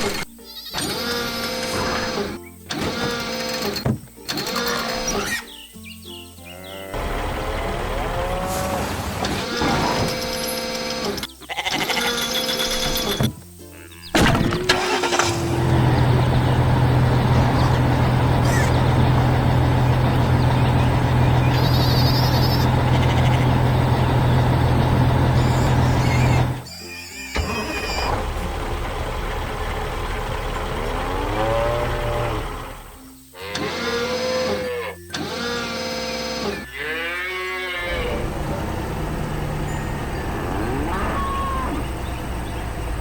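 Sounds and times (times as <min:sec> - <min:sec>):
large machine engine humming: 0:06.9 - 0:11.3, 0:14.5 - 0:26.7, 0:27.3 - 0:33.0, 0:37.8 - 0:43.0
quiet rising tones: 0:37.9 - 0:43.0.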